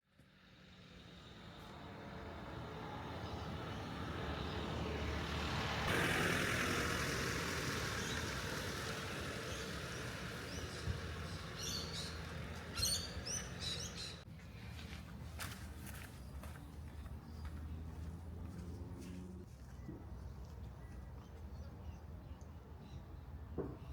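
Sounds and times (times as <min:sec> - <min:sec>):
vehicle passing by: 0:00.2 - 0:20.7
birds chirping: 0:06.0 - 0:14.7, 0:15.7 - 0:23.9.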